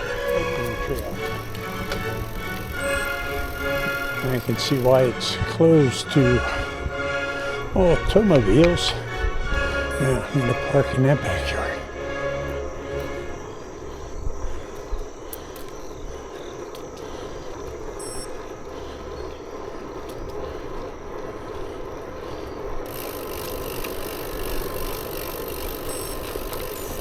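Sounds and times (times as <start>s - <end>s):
wind noise: 0.0s - 11.4s
bicycle tyre noise: 0.0s - 27.0s.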